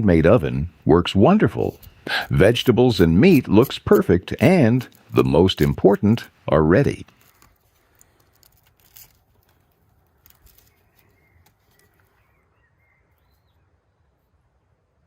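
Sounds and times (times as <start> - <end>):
faint bird chirps: 10.6 - 14.3.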